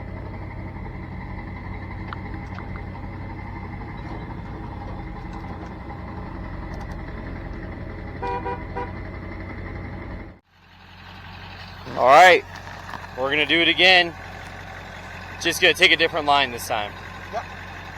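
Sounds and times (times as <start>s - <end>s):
truck engine running: 0.0s - 17.9s
vehicle horn toots: 8.0s - 9.2s.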